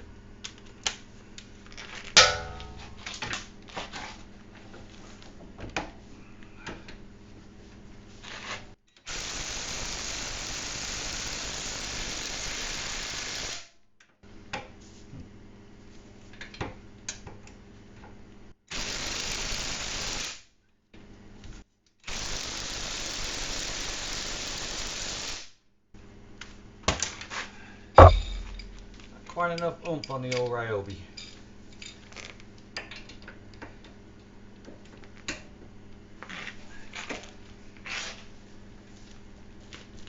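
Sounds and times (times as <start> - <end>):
impact wrench hammering: 2.2 - 3.1, 28.0 - 29.1.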